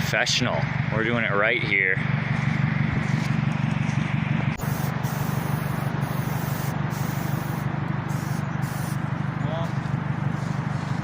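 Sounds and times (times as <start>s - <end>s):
low hum: 0.0s - 11.0s
spray paint can hissing: 4.6s - 9.0s.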